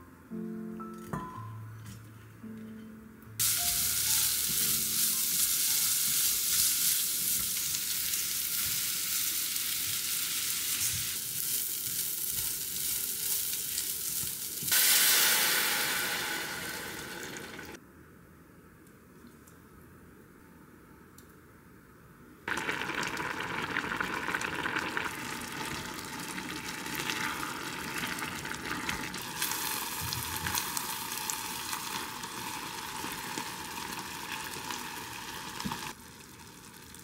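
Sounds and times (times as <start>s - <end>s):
food sizzling in hot oil: 3.4s - 17.8s, 22.5s - 37.0s.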